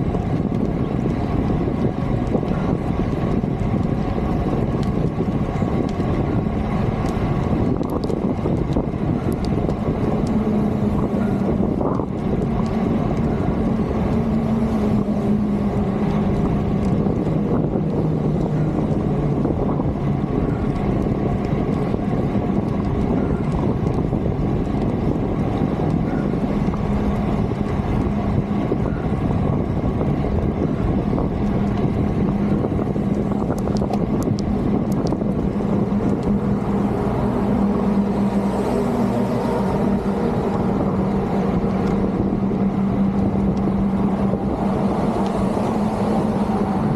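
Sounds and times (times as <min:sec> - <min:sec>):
low engine hum: 0:00.0 - 0:46.9
wind rushing over microphone: 0:00.0 - 0:46.9
faint ticks: 0:31.4 - 0:39.3.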